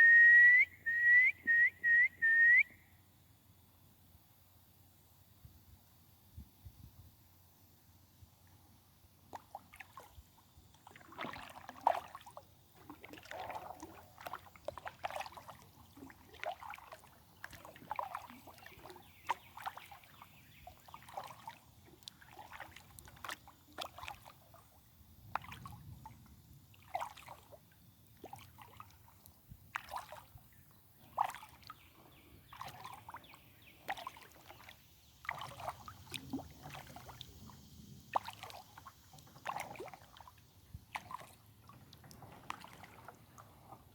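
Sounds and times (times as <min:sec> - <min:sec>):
paddle splashing in water: 0:09.2 - 0:43.9.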